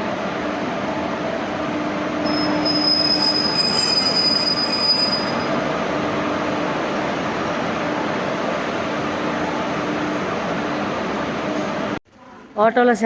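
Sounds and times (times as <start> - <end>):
train wheels squealing on rails: 2.2 - 5.6.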